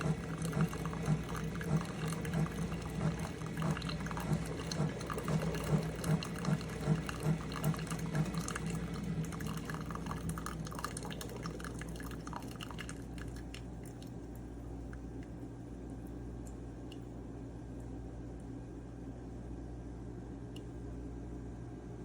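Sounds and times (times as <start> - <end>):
coffee splashing into cup: 0.0 - 15.4
trickle and drips: 0.0 - 15.4
coffee maker pump humming in pulses: 0.0 - 16.4.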